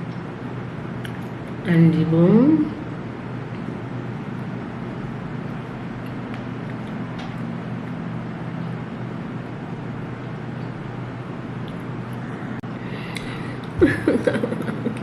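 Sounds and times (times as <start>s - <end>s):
mechanical hum with hiss: 0.0s - 15.0s.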